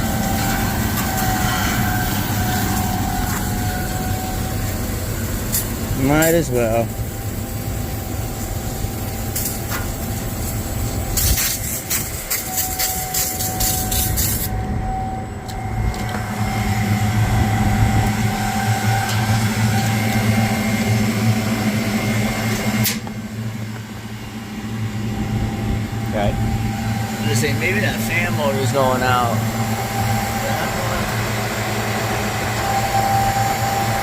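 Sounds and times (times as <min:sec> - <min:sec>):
air conditioner unit humming: 0:00.0 - 0:34.0
faint high whine: 0:00.0 - 0:34.0.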